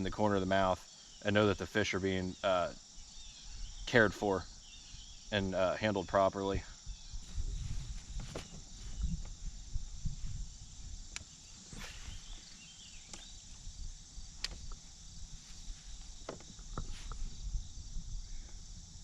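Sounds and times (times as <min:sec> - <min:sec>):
insects chirring: 0:00.0 - 0:19.0
sharp clicks: 0:14.4 - 0:14.8.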